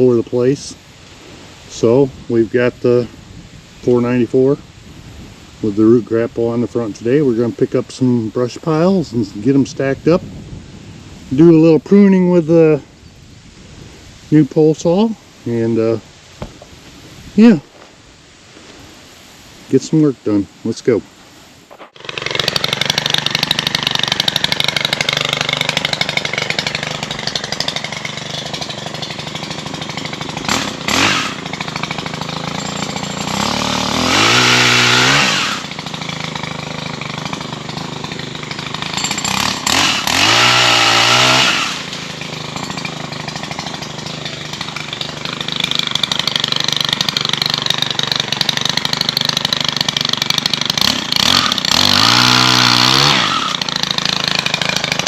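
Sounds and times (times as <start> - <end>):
engine running and revving: 30.4 - 31.4, 33.2 - 35.7, 39.2 - 42.1, 48.9 - 55.0.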